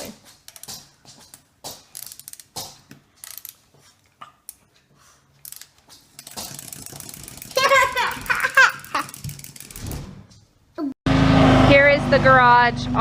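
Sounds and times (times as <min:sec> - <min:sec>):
small mechanism clicking and rattling: 0:00.4 - 0:03.6, 0:05.4 - 0:10.0.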